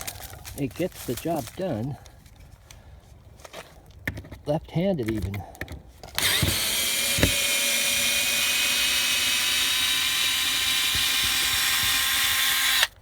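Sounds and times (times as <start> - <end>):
power screwdriver whirring: 6.2 - 13.0.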